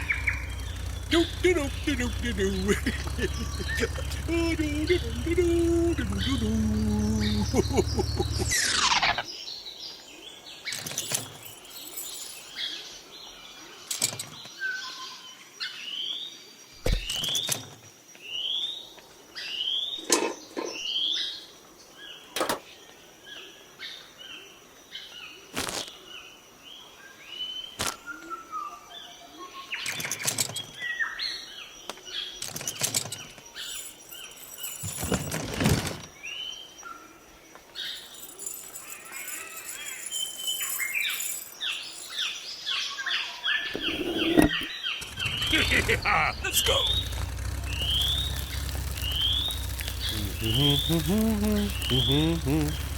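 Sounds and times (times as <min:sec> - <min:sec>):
small birds chirping: 0:00.0 - 0:14.6, 0:31.6 - 0:35.3, 0:37.6 - 0:42.8, 0:43.6 - 0:52.9.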